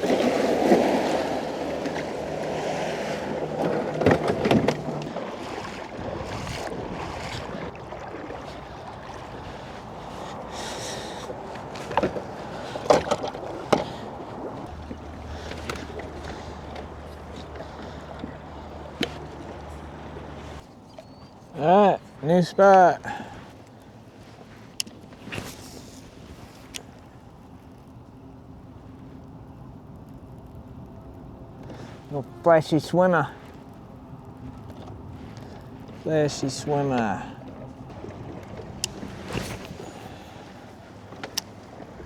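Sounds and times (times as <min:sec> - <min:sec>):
paddle knocking against kayak: 0:00.0 - 0:20.6, 0:34.4 - 0:42.0
water splashing around kayak: 0:00.0 - 0:42.0.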